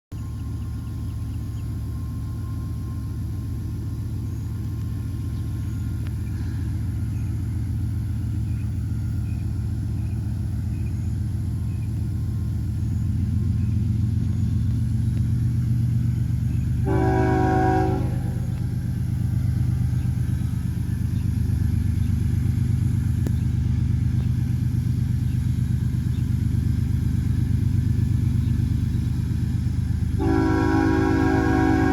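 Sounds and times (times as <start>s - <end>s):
freight train rumble: 0.1s - 31.9s
locomotive air horn blast: 16.8s - 18.8s, 30.1s - 31.9s.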